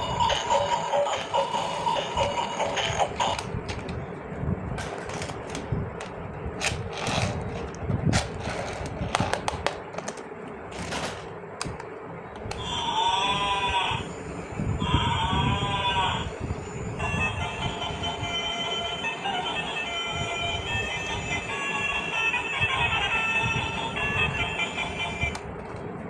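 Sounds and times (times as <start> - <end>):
plastic pieces clicking and tapping: 4.8 - 12.6.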